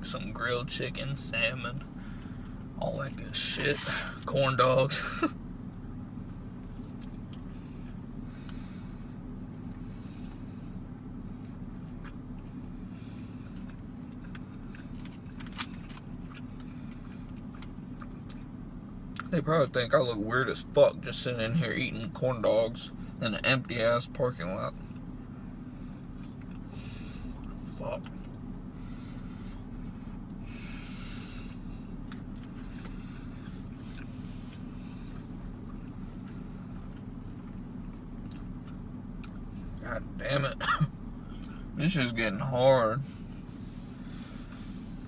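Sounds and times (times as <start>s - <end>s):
car engine idling: 0.0s - 45.0s
steady low hum: 0.0s - 45.0s
chewing and eating clicks: 13.5s - 18.5s, 38.2s - 39.5s.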